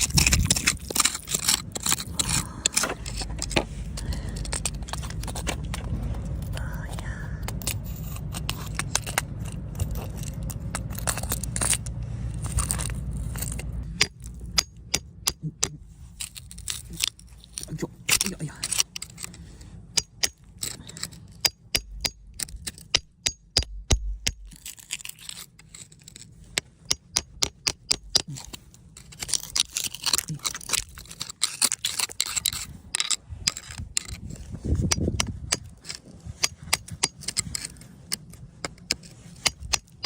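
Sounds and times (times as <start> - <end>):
tools chipping at rock: 0.0 - 5.8, 6.4 - 40.0
scraping on rock: 0.0 - 14.7, 24.3 - 40.0.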